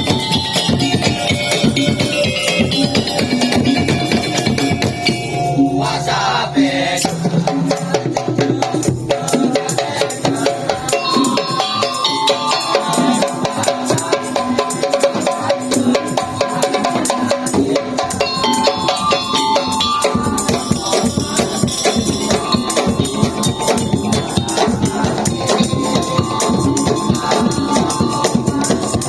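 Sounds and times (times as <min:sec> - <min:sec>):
pitched melodic tones: 0:00.0 - 0:07.2, 0:10.9 - 0:14.2, 0:18.2 - 0:29.0
deep drum beats: 0:00.0 - 0:10.9, 0:16.8 - 0:29.0
slit drum percussion ensemble: 0:00.0 - 0:29.0.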